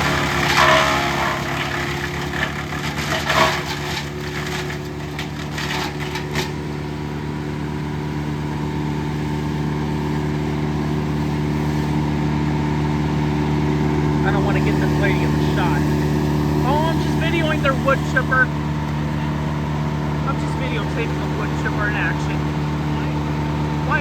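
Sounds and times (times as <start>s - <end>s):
wood crackling and splintering: 0.0s - 7.0s, 13.9s - 24.0s
wood chipper engine running: 0.0s - 24.0s.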